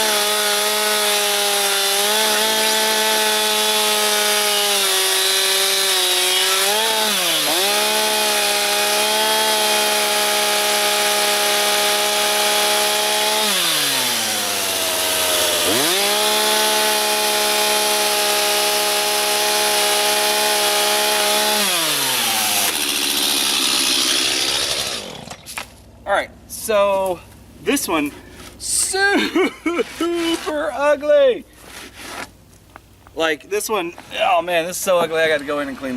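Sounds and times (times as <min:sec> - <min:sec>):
chainsaw cutting log: 0:00.0 - 0:25.8.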